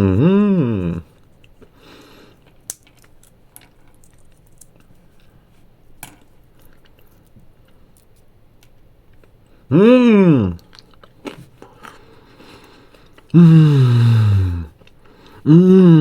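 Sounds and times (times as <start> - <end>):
chewing and crunching: 0.9 - 5.5, 6.2 - 9.6, 10.6 - 13.4, 14.7 - 15.4.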